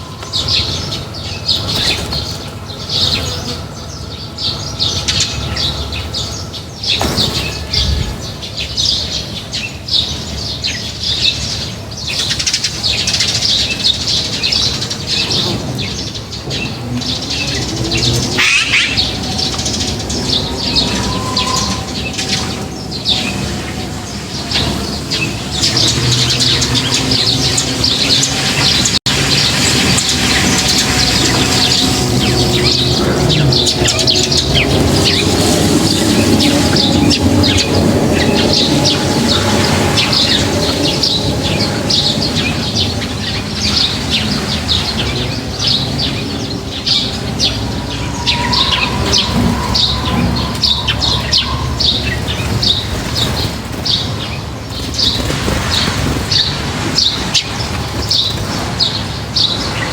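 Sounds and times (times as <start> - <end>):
flock of small birds chirping: 0.0 - 59.9.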